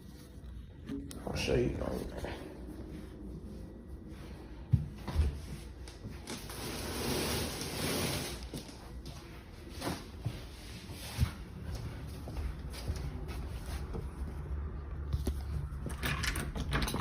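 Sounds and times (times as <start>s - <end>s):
footsteps: 8.5s - 15.8s.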